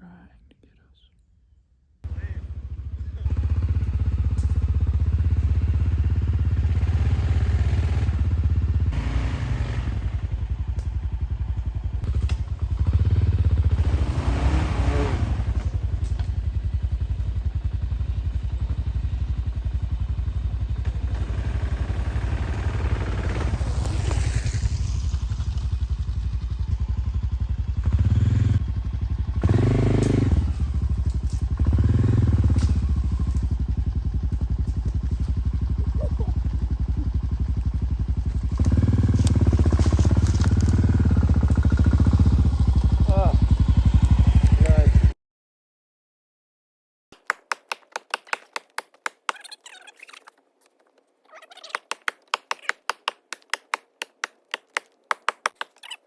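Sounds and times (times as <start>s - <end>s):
motorcycle engine revving: 2.1s - 45.2s.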